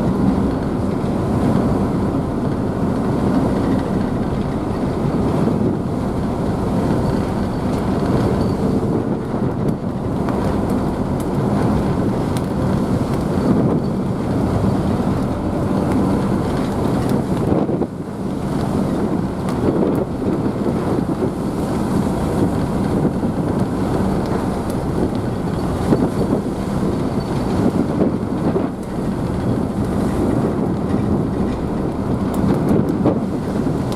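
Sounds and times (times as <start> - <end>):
ferry engines droning: 0.0 - 33.9
wind on microphone: 0.0 - 33.9.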